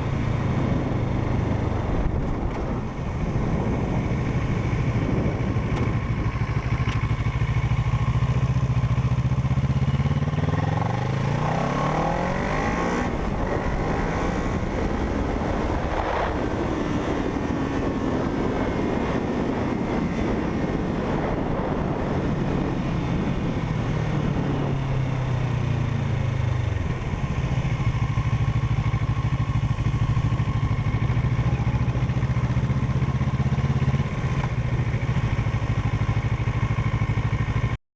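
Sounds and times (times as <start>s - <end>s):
motorcycle engine running: 0.0s - 37.8s.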